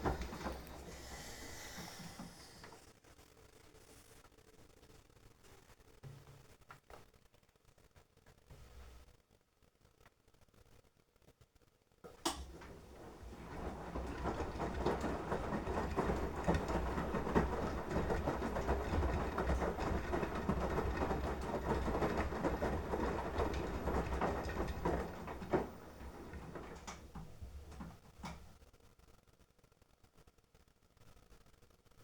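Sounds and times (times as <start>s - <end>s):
washing machine click: 0.0s - 1.2s, 12.1s - 28.5s
washing machine drum turning: 0.0s - 2.6s, 12.1s - 28.6s
washing machine knock: 0.0s - 2.6s, 12.3s - 28.5s.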